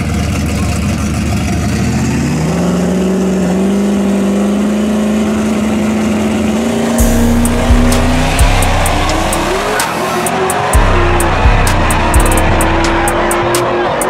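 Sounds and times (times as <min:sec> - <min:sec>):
car engine at high revs: 0:00.0 - 0:14.0
bass-heavy music beats: 0:06.8 - 0:14.0.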